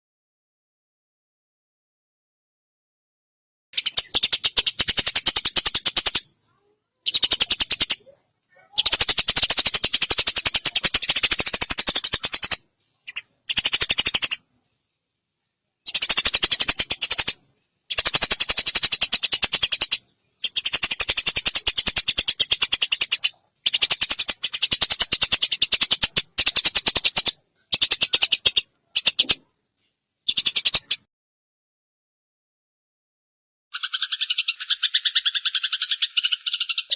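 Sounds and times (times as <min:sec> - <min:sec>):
sparrows chattering: 0:03.8 - 0:14.5, 0:15.8 - 0:29.5, 0:30.3 - 0:31.1, 0:33.8 - 0:36.9.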